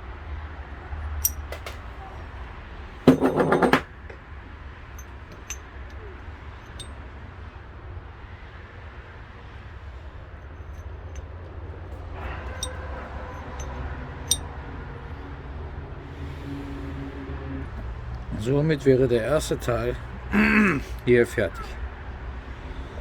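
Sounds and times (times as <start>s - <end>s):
metal parts clicking and clinking: 1.2s - 1.9s, 5.0s - 6.0s, 6.6s - 6.9s, 12.4s - 14.5s.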